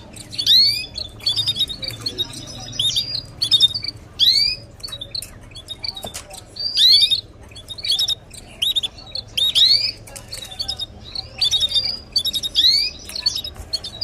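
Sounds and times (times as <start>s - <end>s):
canaries chirping: 0.0s - 14.0s.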